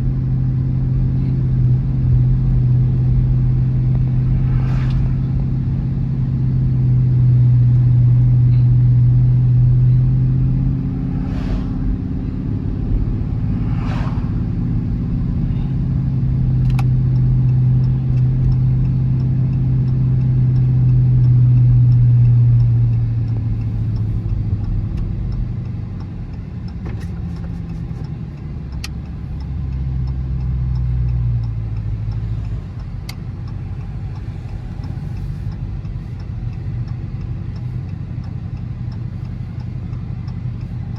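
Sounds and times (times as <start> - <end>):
car engine and exhaust drone: 0.0 - 40.9
faint regular ticking: 16.1 - 40.9.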